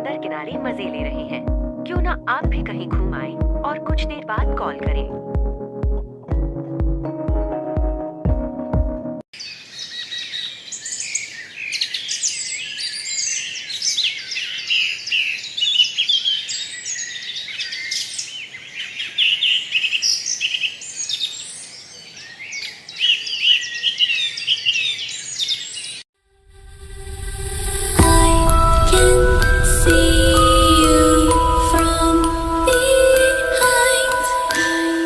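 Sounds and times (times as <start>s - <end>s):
small birds chirping and singing: 9.4s - 26.0s.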